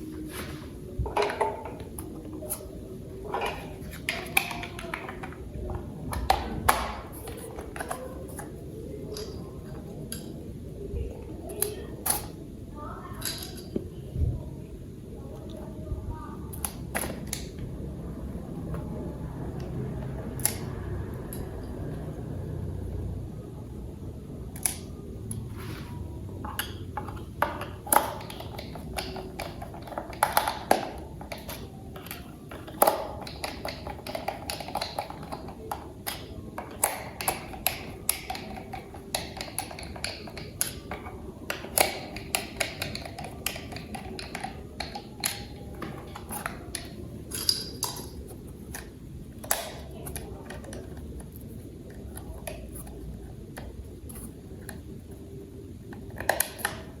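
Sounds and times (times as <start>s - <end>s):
plastic toy parts clicking: 26.4s - 54.9s, 55.9s - 57.0s.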